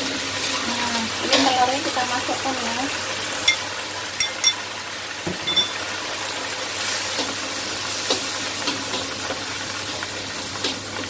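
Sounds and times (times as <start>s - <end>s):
food sizzling in a wok: 0.0s - 11.0s
bowl clinking on pan: 3.4s - 4.7s, 5.3s - 5.9s.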